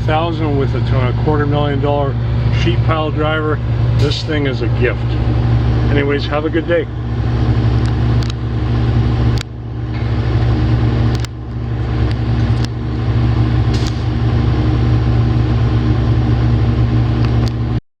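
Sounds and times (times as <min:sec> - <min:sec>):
excavator diesel engine running: 0:00.0 - 0:17.8.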